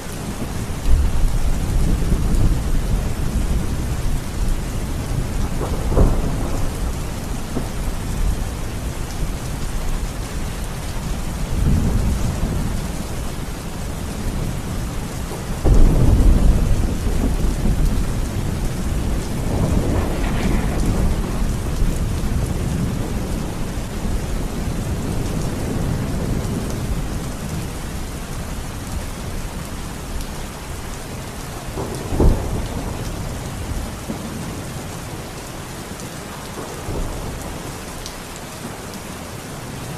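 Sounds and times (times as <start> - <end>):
steady rain: 0.0 - 39.9
rolling thunder: 0.3 - 10.3, 14.0 - 27.8, 31.7 - 34.8
sharp thunderclap: 5.1 - 8.5, 15.6 - 24.2.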